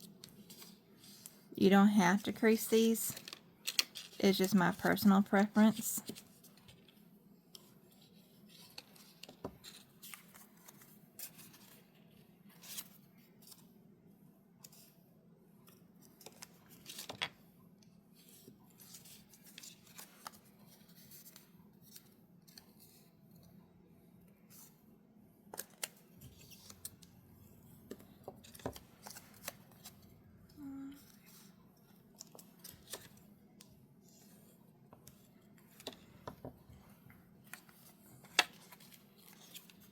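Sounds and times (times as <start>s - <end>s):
paper rustling and creasing: 5.6s - 13.7s, 27.9s - 30.1s, 37.4s - 39.9s.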